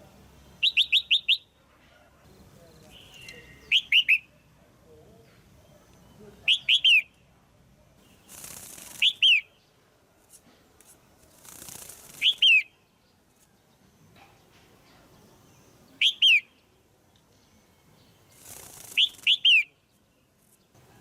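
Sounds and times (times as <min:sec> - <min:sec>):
bird calling sharp downslurred notes: 0:02.9 - 0:04.3
soft rushing hiss: 0:08.0 - 0:12.5, 0:17.0 - 0:21.0.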